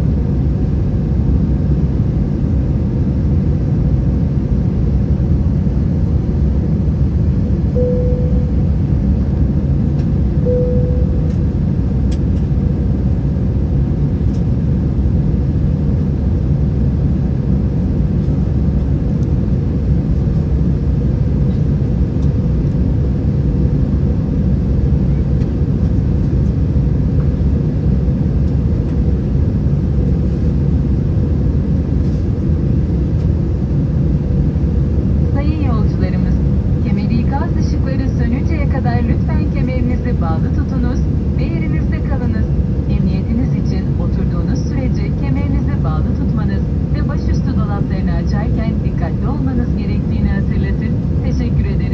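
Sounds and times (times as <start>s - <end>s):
airliner cabin rumble: 0.0s - 51.9s
brief faint tones: 7.8s - 8.9s, 10.4s - 11.5s.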